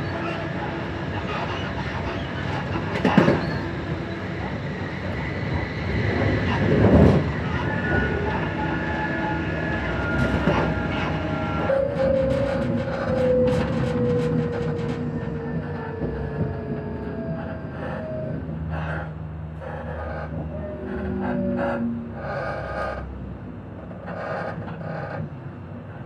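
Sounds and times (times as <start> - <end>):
train motor whine: 0.0 - 18.6
train wheels rumbling on rails: 0.0 - 26.0.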